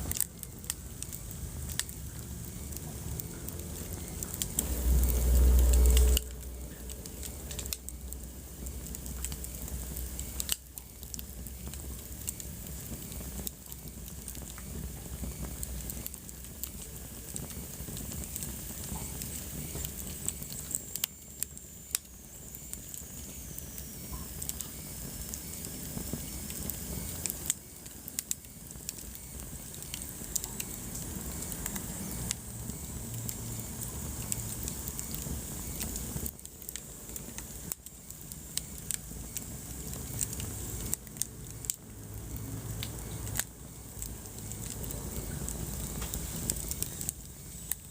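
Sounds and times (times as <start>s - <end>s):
wood fire crackling: 0.0s - 47.9s
low rumble: 0.9s - 10.2s.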